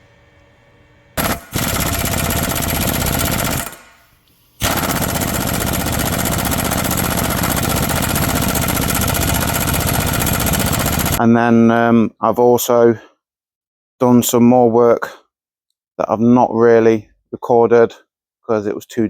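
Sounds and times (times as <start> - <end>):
impact wrench hammering: 1.2 - 11.2.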